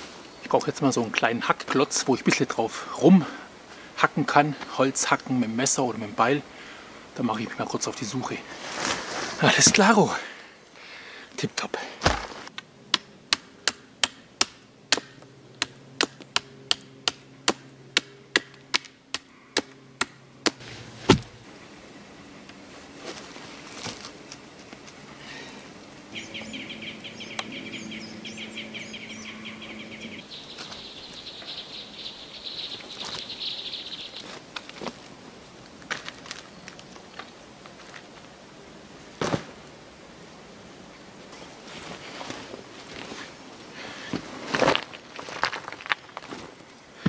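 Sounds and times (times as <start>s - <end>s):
wood chopping strikes: 12.0s - 21.4s
bird trilling: 26.1s - 34.3s.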